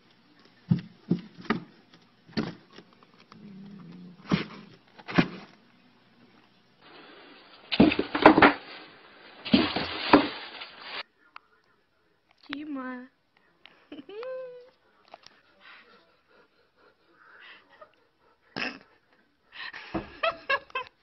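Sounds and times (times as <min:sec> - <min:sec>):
cat scuffling in a box: 0:06.9 - 0:11.0
cat thumping on cardboard box: 0:07.7 - 0:08.7, 0:09.5 - 0:10.6.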